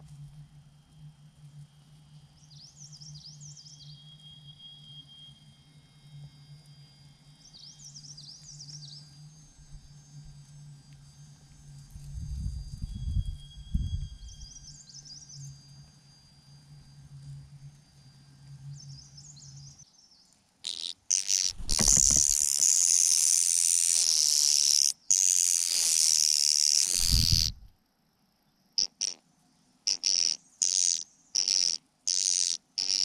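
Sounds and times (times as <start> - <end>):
mynas giving harsh hissing calls: 20.6 - 27.6, 28.8 - 29.2, 29.9 - 33.0.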